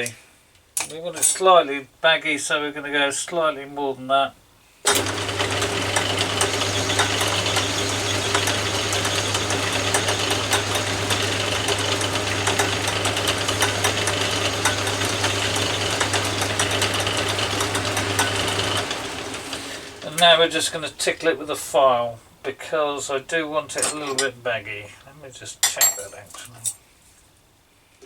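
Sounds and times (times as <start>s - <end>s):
fast clatter from lathe drive: 4.9s - 21.2s
metal lathe running: 4.9s - 21.4s
steady motor hum: 4.9s - 21.4s.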